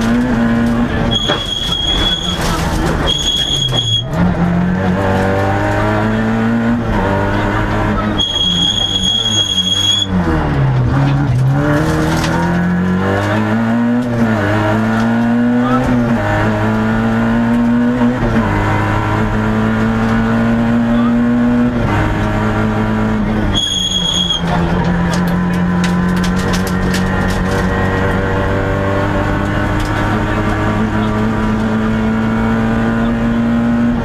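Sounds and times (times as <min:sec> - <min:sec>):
car engine revving through gears: 0:00.0 - 0:34.0
high steady beep: 0:08.2 - 0:10.1.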